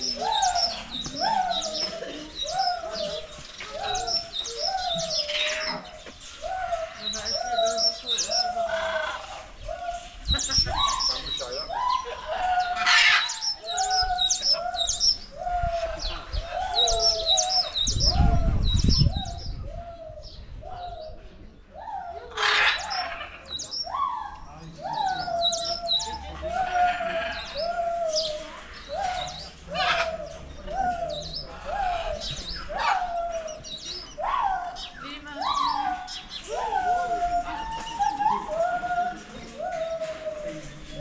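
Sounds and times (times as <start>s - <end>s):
high bird chirping: 0.0s - 12.1s.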